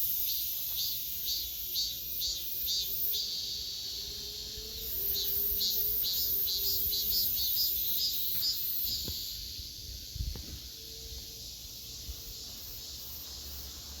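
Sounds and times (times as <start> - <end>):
cicadas calling in pulses: 0.0 - 14.0
high insect buzz: 0.0 - 14.0.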